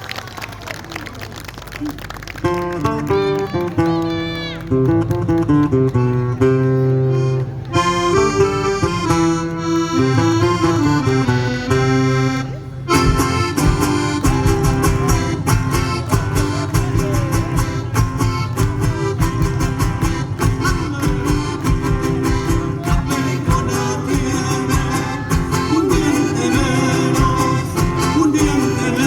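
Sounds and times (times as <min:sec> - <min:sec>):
accordion and guitar folk music: 0:02.4 - 0:29.0.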